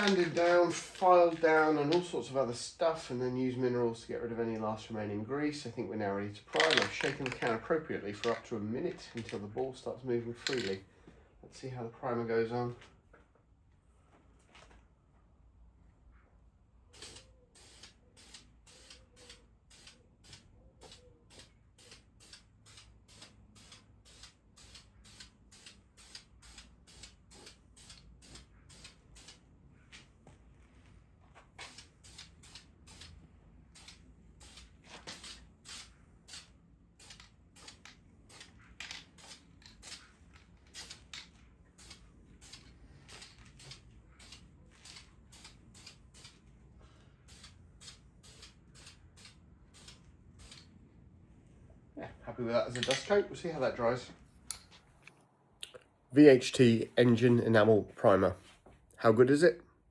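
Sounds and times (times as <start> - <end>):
aerosol spray hissing bursts: 17.0 - 29.4.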